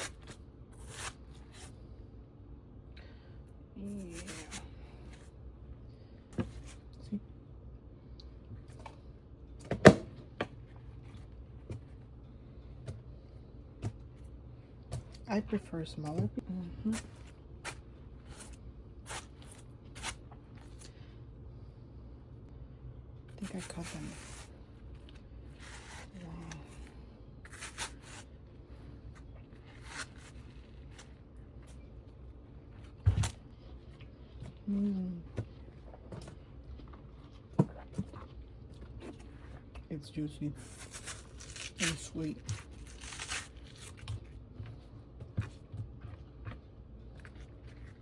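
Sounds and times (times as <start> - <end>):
knife scraping cutting board: 0.0 - 1.7.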